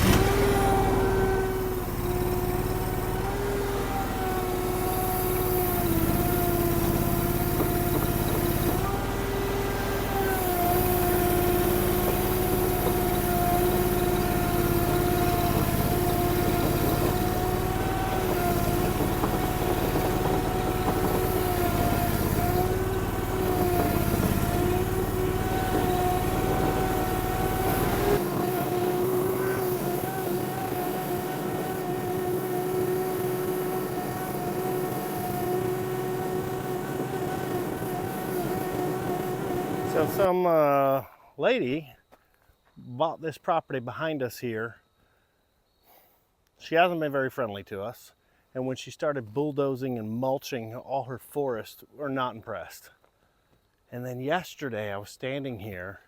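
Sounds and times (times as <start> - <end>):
skid steer engine running hard: 0.0 - 40.3.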